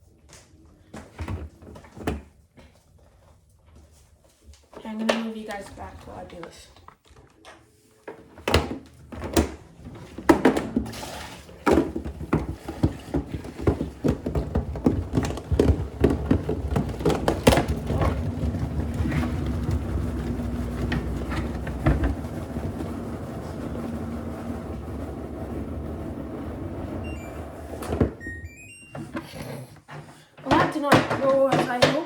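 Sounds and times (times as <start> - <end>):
washing machine rumbling: 8.4 - 29.4
knocks and clunks: 11.6 - 29.2.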